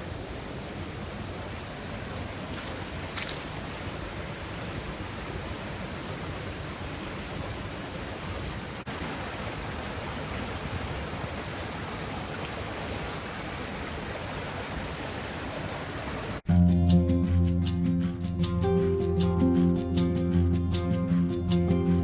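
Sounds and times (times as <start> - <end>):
guitar music: 16.5 - 22.0.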